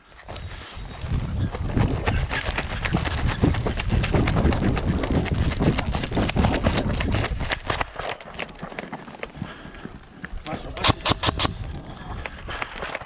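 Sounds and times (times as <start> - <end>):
footsteps running on gravel: 1.1 - 10.2.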